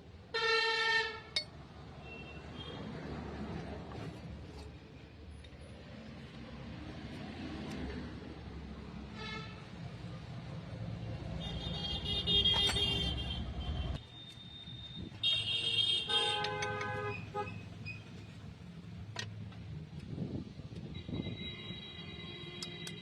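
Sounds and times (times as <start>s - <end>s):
vehicle horns honking: 11.4s - 14.0s, 14.7s - 17.6s, 20.9s - 23.0s.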